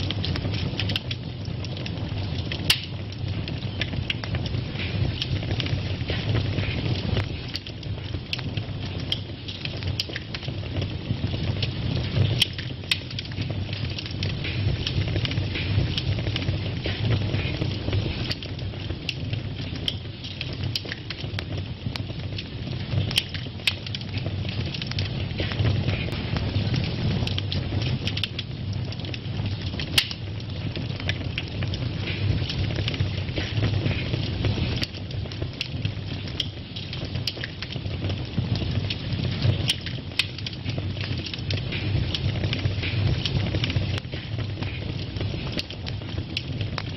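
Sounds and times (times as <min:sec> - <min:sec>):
fire flames rumbling: 0:00.0 - 0:46.9
wood fire crackling and popping: 0:00.0 - 0:46.9.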